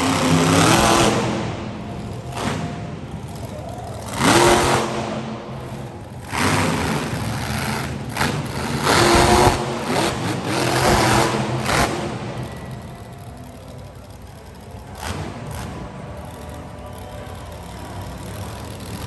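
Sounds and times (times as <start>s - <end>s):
truck engine revving hard: 0.0s - 19.0s.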